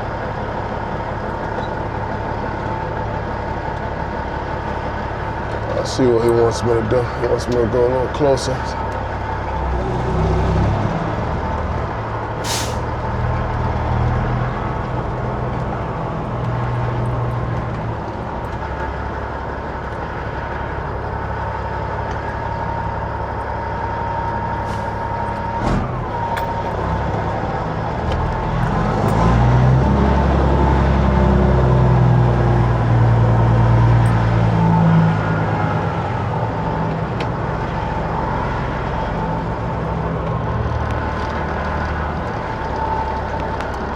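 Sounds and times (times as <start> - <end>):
truck diesel engine running: 0.0 - 43.9
air brakes hissing: 12.4 - 13.0, 24.6 - 26.5.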